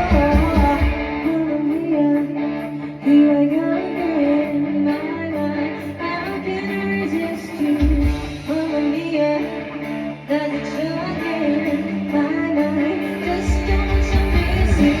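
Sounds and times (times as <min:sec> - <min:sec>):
heavy bass: 0:00.0 - 0:01.4, 0:13.2 - 0:15.0
live band playing: 0:00.0 - 0:15.0
woman singing: 0:00.0 - 0:15.0.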